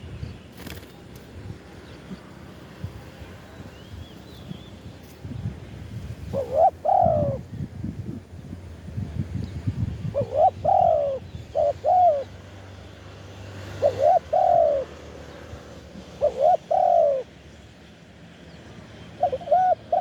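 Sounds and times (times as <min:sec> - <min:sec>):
dove cooing: 0:06.3 - 0:07.4, 0:10.1 - 0:12.4, 0:13.7 - 0:15.0, 0:16.1 - 0:17.3, 0:19.2 - 0:20.0.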